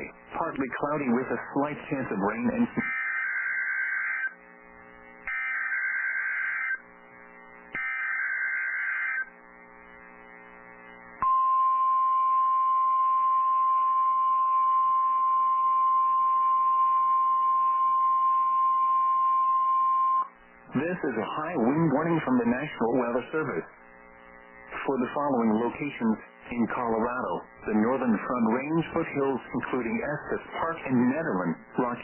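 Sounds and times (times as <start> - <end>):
steady warning alarm tone: 2.8 - 4.4, 5.3 - 6.8, 7.8 - 9.4
screeching digital header bursts: 5.3 - 6.8, 7.8 - 9.3.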